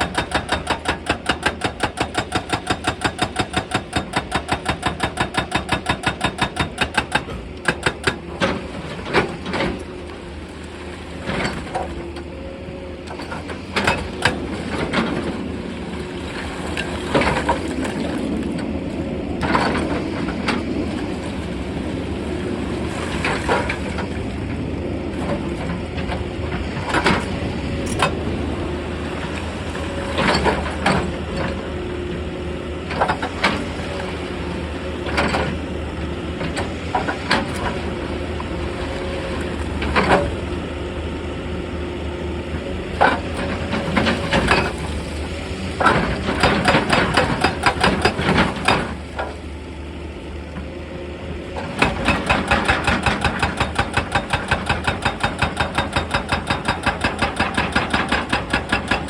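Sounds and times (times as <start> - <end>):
hydraulic rock breaker hammering: 0.0 - 9.5, 13.1 - 15.2, 42.9 - 49.4, 51.7 - 59.0
excavator diesel engine: 23.6 - 59.0.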